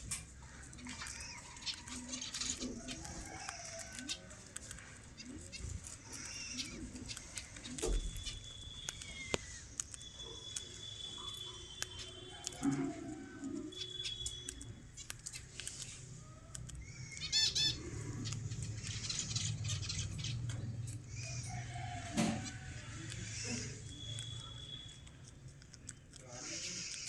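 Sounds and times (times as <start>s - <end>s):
cockatiel chirping: 0.1s - 27.0s
thin steady high tone: 7.8s - 14.9s, 22.6s - 25.3s
sharp clicks and taps: 24.2s - 26.3s.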